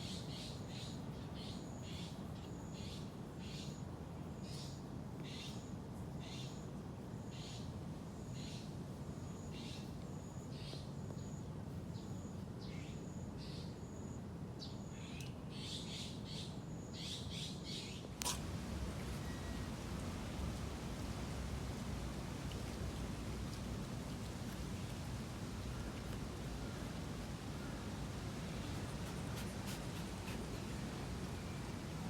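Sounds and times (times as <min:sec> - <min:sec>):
steady low hum: 0:18.0 - 0:32.0
sharp click: 0:18.2 - 0:18.4.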